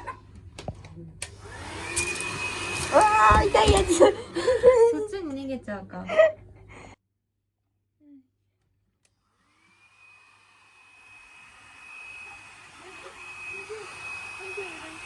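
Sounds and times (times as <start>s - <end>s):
hair dryer blowing with motor whine: 1.2s - 4.4s, 9.1s - 15.0s.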